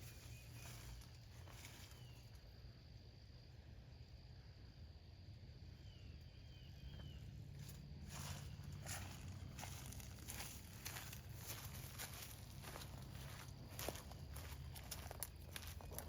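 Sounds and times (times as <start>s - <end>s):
faint high chirps: 5.7s - 7.4s.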